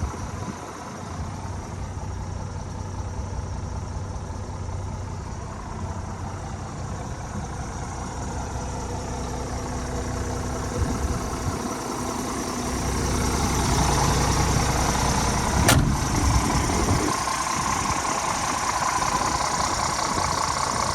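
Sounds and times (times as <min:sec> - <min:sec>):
truck diesel engine idling: 0:00.0 - 0:20.9
sharp click: 0:15.6 - 0:16.1.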